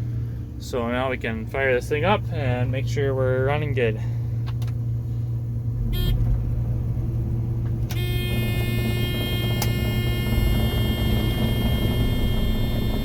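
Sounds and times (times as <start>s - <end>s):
combine engine drone: 0.0s - 13.0s
high multi-tone whine: 7.9s - 13.0s.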